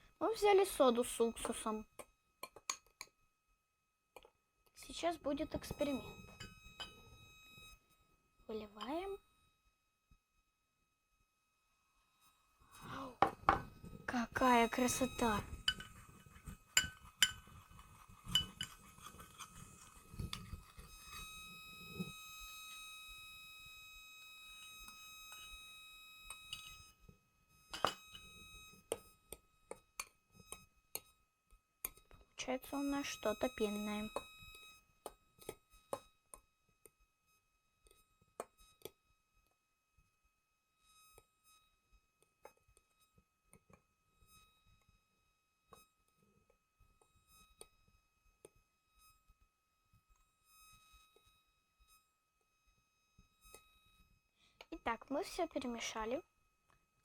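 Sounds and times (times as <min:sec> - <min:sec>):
faint high-pitched whine: 0:04.2 - 0:57.0
high-pitched whine with hiss: 0:04.8 - 0:07.9, 0:19.4 - 0:27.1, 0:32.5 - 0:34.9
utensil clinking against plate: 0:15.7 - 0:16.0, 0:16.8 - 0:19.5.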